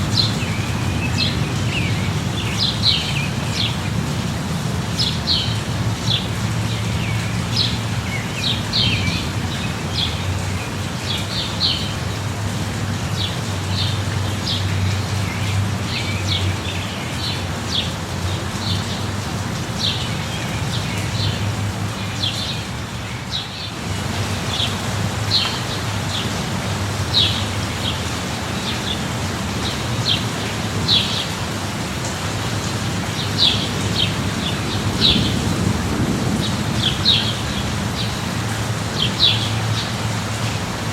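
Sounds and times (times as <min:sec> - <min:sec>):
birds chirping: 0:00.0 - 0:12.2, 0:32.7 - 0:40.6
steady rain: 0:00.0 - 0:40.9.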